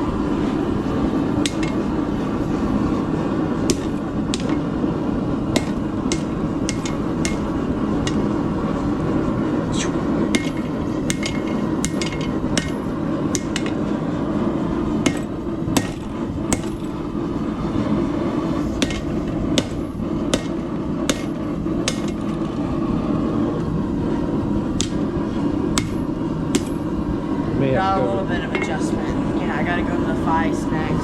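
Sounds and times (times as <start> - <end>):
low rushing noise: 0.0 - 31.0
hammer striking steel on anvil: 1.4 - 1.9, 3.6 - 4.7, 5.5 - 8.4, 9.8 - 13.9, 15.0 - 16.9, 18.8 - 22.3, 25.8 - 26.8, 28.5 - 28.8.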